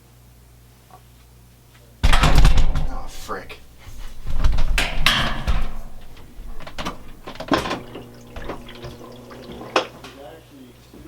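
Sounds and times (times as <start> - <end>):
washing machine knocks and clunks: 2.0 - 10.0
washing machine motor hum: 2.0 - 10.3.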